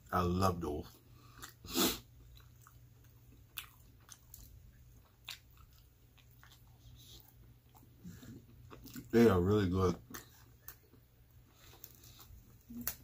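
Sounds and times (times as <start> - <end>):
chewing pizza: 0.8 - 13.0
soft crust crunches: 10.2 - 13.0.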